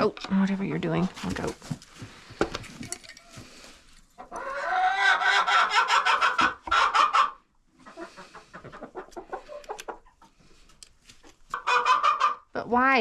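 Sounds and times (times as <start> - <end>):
hen clucking: 4.2 - 10.5, 11.2 - 12.5
hen squawking cackles: 4.4 - 10.0, 11.6 - 12.5.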